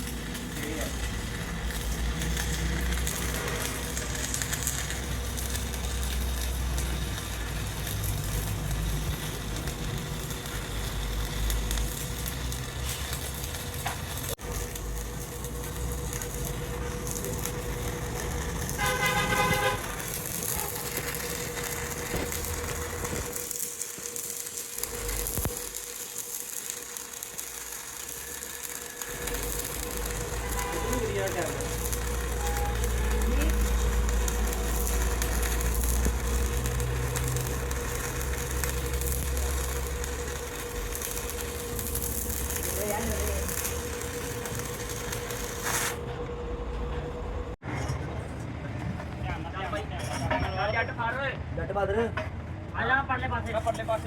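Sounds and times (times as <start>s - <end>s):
low rumble of vehicles: 0.0s - 54.0s
workshop noise: 0.0s - 54.0s
vehicle horn: 18.6s - 21.0s, 29.8s - 35.0s.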